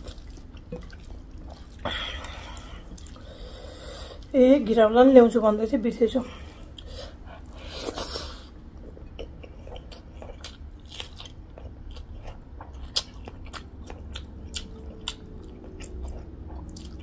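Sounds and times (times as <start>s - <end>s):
wet chewing: 0.0s - 4.3s, 8.8s - 17.0s.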